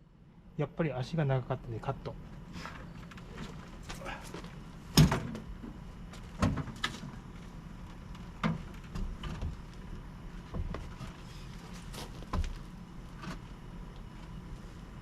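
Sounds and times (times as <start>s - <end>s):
knocks and clunks of frame: 4.9s - 5.5s, 6.4s - 7.0s.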